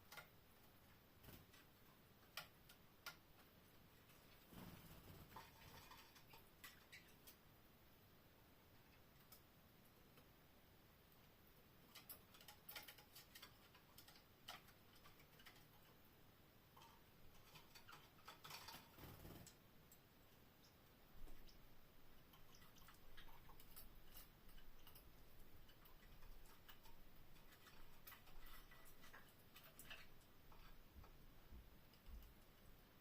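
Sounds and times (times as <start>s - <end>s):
faint small clicks: 8.9s - 9.5s.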